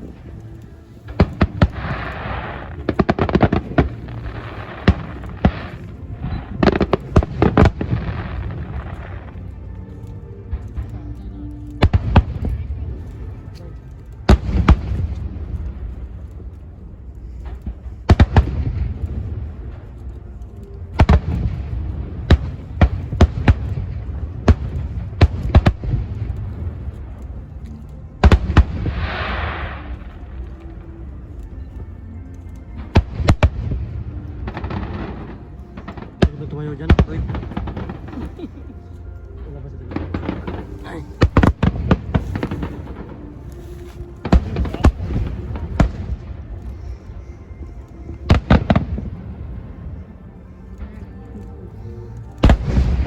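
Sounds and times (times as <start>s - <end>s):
hissing crackle: 0.0s - 53.0s
fireworks bangs: 1.0s - 9.4s, 32.8s - 38.7s, 39.9s - 46.7s, 52.4s - 53.0s.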